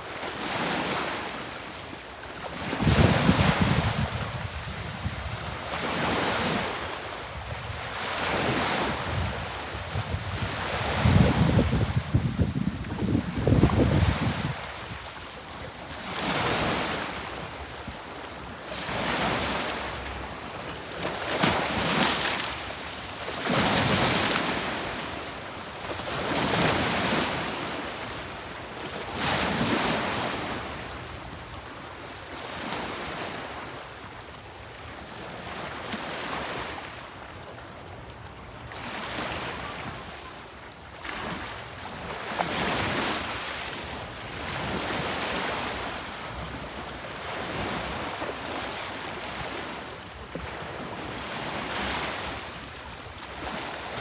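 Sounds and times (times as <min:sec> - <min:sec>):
wind on microphone: 0:02.6 - 0:06.6, 0:07.3 - 0:15.2.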